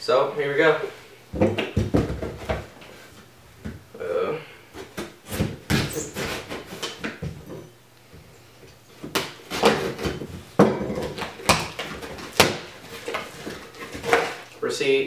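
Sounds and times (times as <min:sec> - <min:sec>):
package knocks and scrapes: 0:09.1 - 0:14.5.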